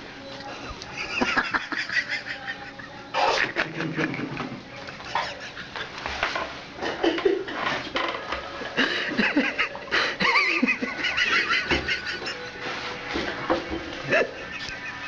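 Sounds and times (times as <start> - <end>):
people laughing: 0.7 - 6.0, 8.6 - 12.8, 14.0 - 15.0.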